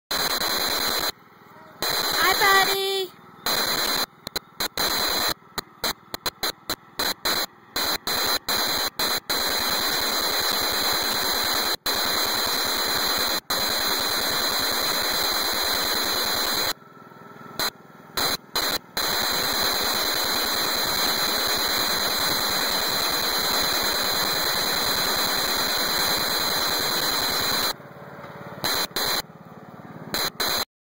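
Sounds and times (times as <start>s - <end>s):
loud static hiss: 0.1s - 1.2s, 1.8s - 16.8s, 17.6s - 27.8s, 28.6s - 29.2s, 30.1s - 30.7s
thin steady high tone: 0.3s - 6.0s.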